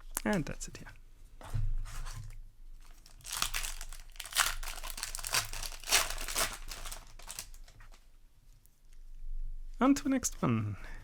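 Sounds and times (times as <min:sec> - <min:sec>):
foil wrapper crinkling: 0:02.8 - 0:08.0.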